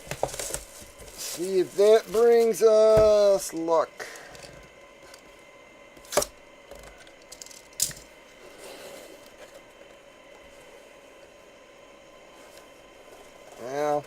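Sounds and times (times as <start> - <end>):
packaging rustling: 0.0 - 3.7.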